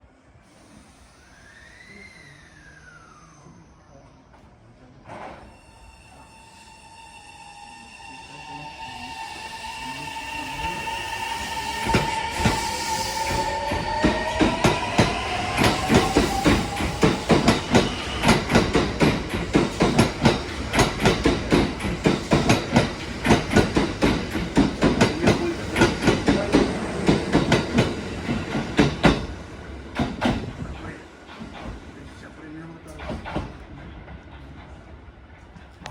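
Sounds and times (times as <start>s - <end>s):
train wheels clattering over joints: 11.8s - 29.3s.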